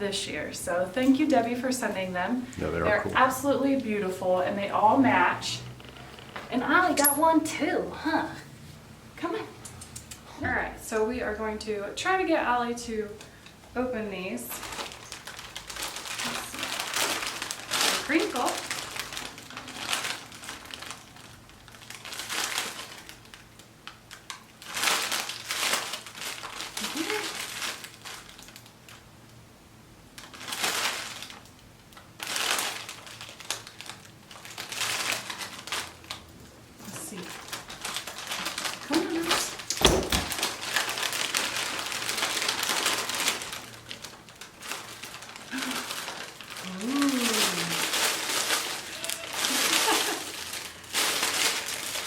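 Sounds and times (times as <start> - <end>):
wrapping paper crinkling: 14.2 - 29.4, 30.1 - 52.0.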